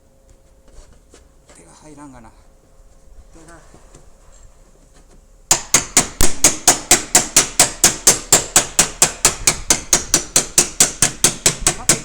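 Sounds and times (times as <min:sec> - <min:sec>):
hammer tapping sheet metal: 0:05.5 - 0:12.0.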